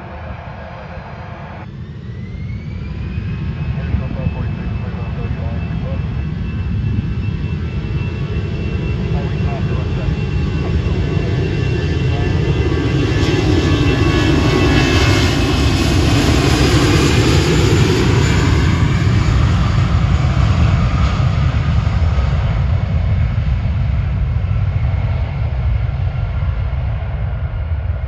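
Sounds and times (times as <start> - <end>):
jet engine whine: 0.0 - 28.0
jet engines roaring at takeoff: 0.0 - 28.0.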